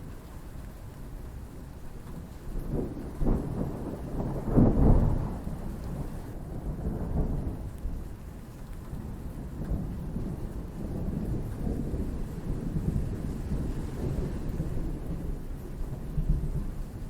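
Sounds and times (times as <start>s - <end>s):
steady rain: 0.0s - 17.0s
thunder rolling: 9.7s - 17.0s.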